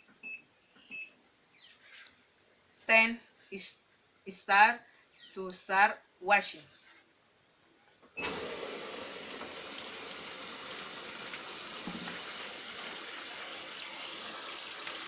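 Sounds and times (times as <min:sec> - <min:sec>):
water rushing into washing machine: 0:08.2 - 0:15.0.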